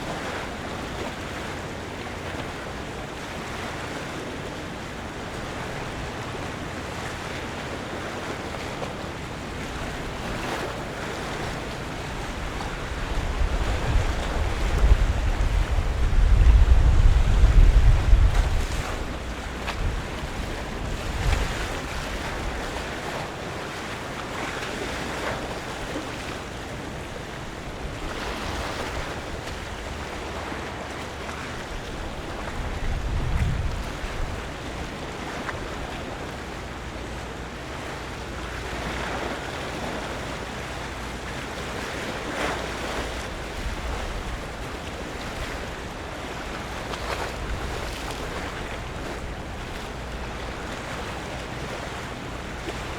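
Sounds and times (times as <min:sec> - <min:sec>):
water lapping: 0:00.0 - 0:52.9
wind buffeting microphone: 0:05.2 - 0:23.6, 0:26.2 - 0:36.2, 0:41.1 - 0:52.9.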